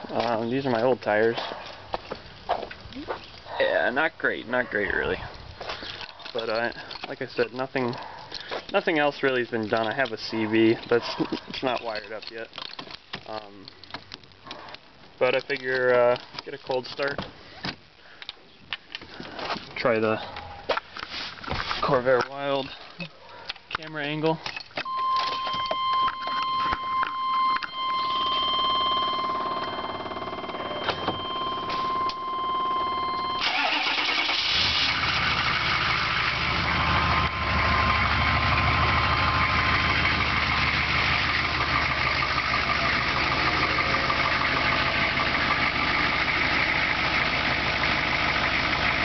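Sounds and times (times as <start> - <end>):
clicks: 23.4 - 29.8
electronic warning tone: 24.9 - 33.4, 37.2 - 39.6
diesel engine starting and idling: 27.2 - 49.0.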